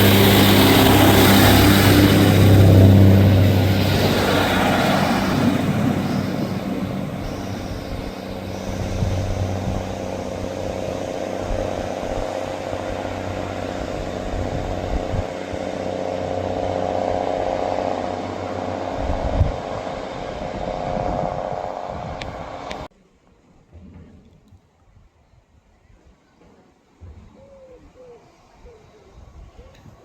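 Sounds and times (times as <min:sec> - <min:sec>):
diesel train passing: 0:00.0 - 0:22.9.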